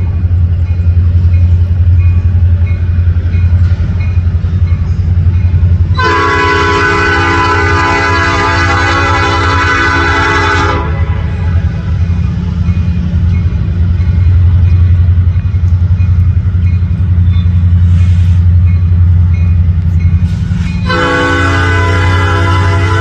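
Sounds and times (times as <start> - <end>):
freight train rumbling past: 0.0 - 23.0
train horn blast: 5.9 - 11.5, 20.8 - 23.0.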